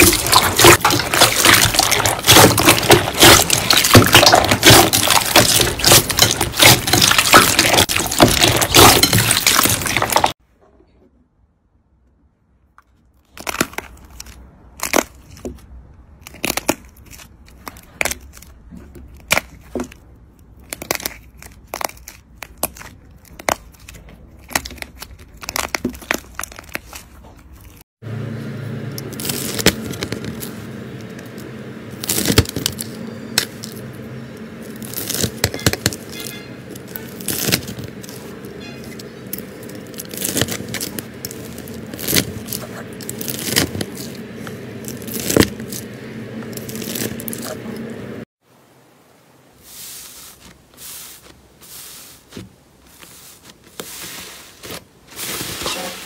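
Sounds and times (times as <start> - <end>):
slime crackling and popping: 0.0 - 10.4, 13.2 - 15.6, 16.2 - 27.8, 29.1 - 47.9
steady low hum: 28.0 - 49.5.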